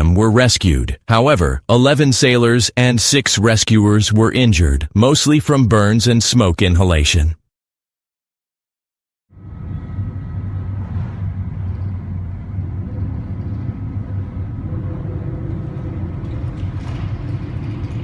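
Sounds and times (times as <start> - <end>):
faint humming tones: 9.4 - 18.0
steady low rumble: 9.4 - 18.0.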